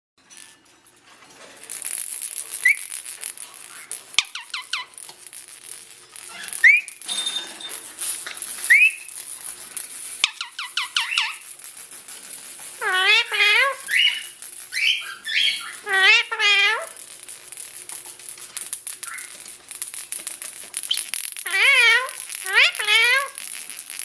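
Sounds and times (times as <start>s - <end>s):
parakeets calling: 3.6s - 5.0s, 6.2s - 7.1s, 10.2s - 11.5s, 12.8s - 17.0s, 19.0s - 19.5s, 20.8s - 23.4s.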